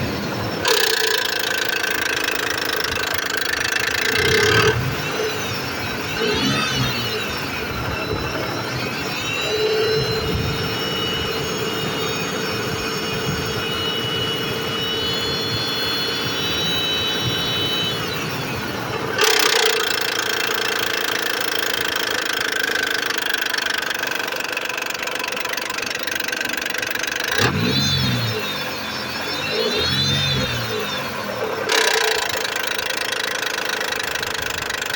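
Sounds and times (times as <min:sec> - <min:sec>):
car engine running with a knock: 0:15.0 - 0:34.9.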